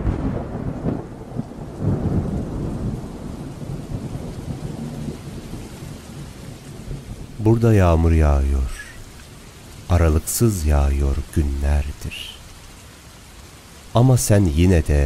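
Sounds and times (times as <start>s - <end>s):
rolling thunder: 0.0s - 7.7s
steady rainfall: 0.0s - 15.0s.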